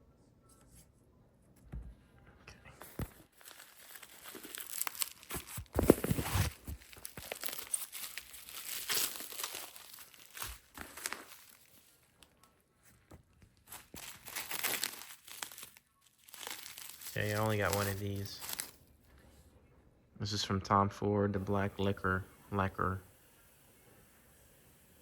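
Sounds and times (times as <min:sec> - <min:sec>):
packaging crinkling and rustling: 0:02.8 - 0:18.9.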